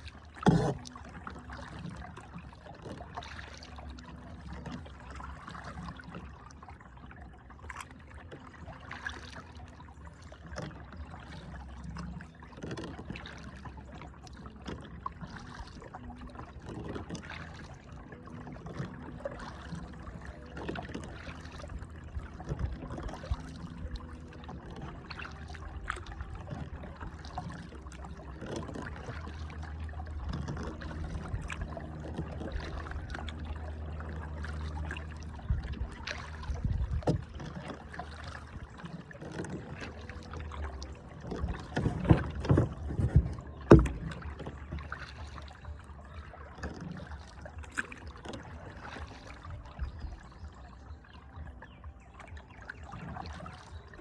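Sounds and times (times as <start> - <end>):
paddle strokes and water splashing: 0.0 - 54.0
knocks on kayak: 41.3 - 44.9.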